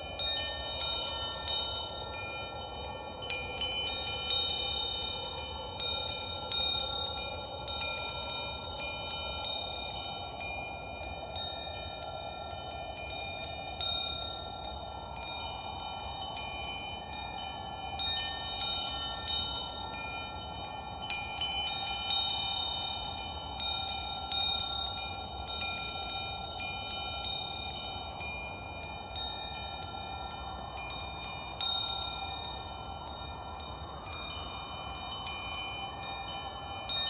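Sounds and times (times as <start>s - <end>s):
wind chimes ringing: 0.0s - 37.0s.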